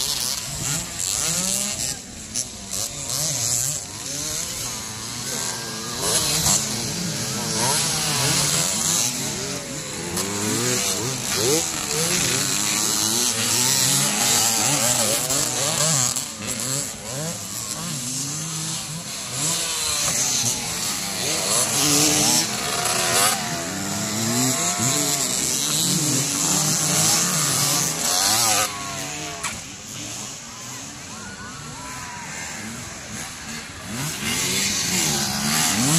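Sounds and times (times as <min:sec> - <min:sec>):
motocross bike engines revving: 0:00.0 - 0:35.9.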